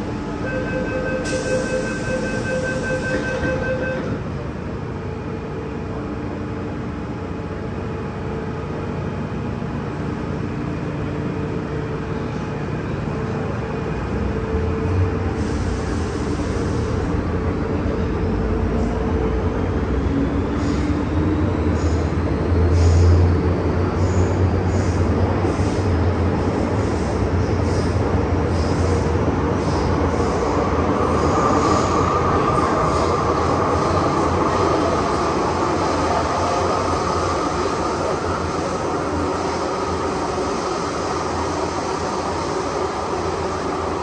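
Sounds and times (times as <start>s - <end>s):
metro train running with motor whine: 0.0s - 44.0s
repeated beeping tone: 0.4s - 4.2s.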